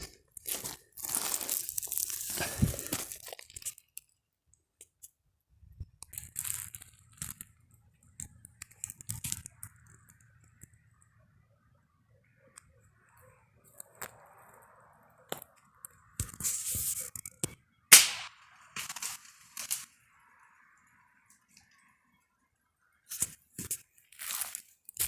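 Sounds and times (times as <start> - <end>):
dry brush crunching underfoot: 0.5 - 3.5.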